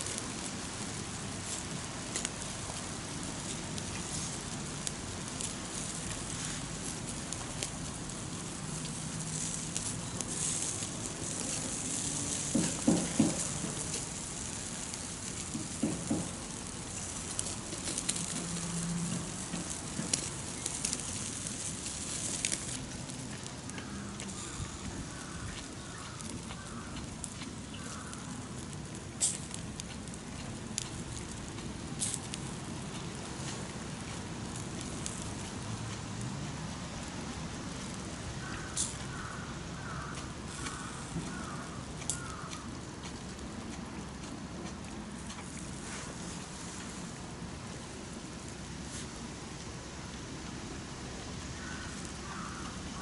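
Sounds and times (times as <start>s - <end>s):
campfire crackling: 0.0s - 53.0s
sharp pops: 12.3s - 14.2s, 15.4s - 18.5s.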